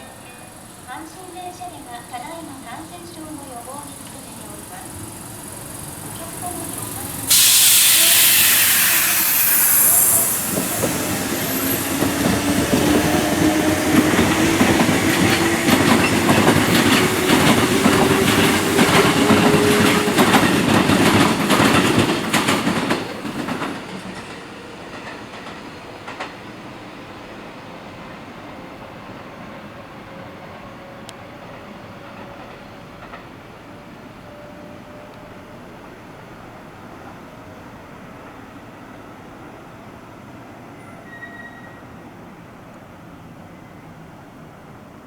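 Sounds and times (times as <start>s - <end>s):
train wheels clacking on rails: 0.1s - 36.0s
electric train motor whine: 4.0s - 20.5s.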